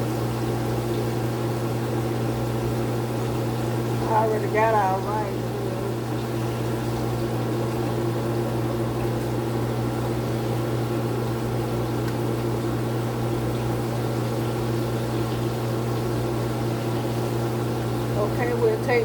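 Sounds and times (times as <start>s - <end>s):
chicken deep-frying in oil: 0.0s - 19.0s
low electrical hum: 0.0s - 19.0s.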